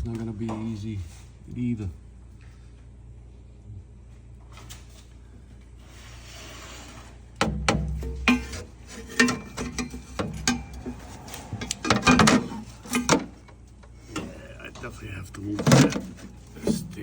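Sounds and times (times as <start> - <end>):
metallic clanks and knocks: 7.4 - 14.9, 15.5 - 17.0.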